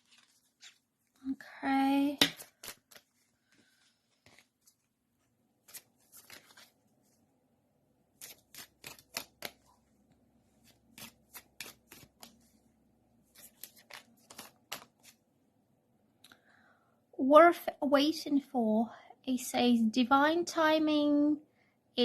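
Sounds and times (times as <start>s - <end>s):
cards being shuffled: 0.0s - 0.9s, 2.2s - 7.2s, 8.2s - 9.8s, 10.5s - 12.6s, 13.3s - 15.2s.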